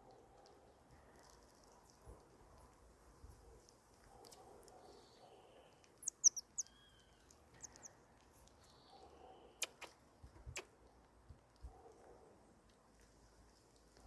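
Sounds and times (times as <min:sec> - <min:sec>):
marmosets chirping: 0:06.0 - 0:07.9, 0:09.4 - 0:09.9
sharp clicks: 0:09.6 - 0:10.7.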